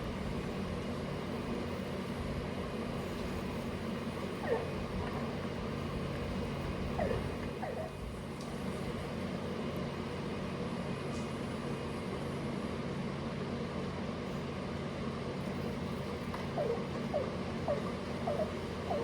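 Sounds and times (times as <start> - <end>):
pressure washer engine hum: 15.3 - 19.0.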